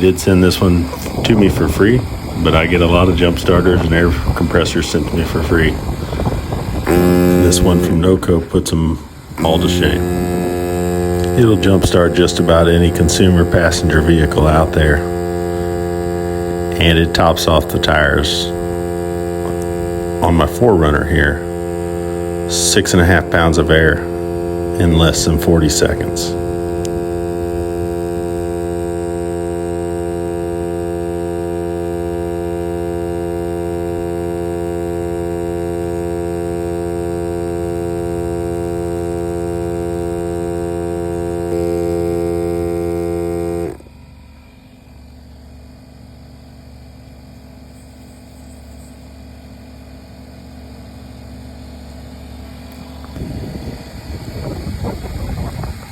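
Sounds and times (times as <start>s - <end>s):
irregular rumbling: 0.0s - 44.1s
air compressor humming: 0.0s - 55.9s.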